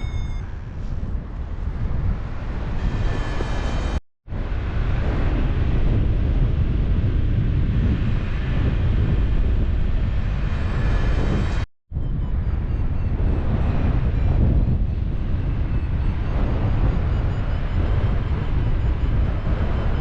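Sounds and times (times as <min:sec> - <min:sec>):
airflow buffeting microphone: 0:00.0 - 0:20.0.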